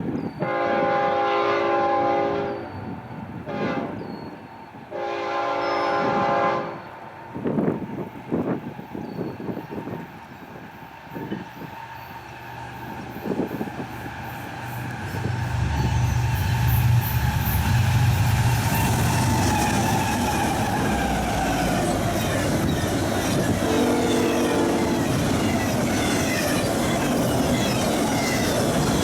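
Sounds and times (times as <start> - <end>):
locomotive air horn blasts: 0.4 - 4.1, 4.9 - 6.9, 23.3 - 25.4
train wheels rumbling on rails: 2.3 - 29.0.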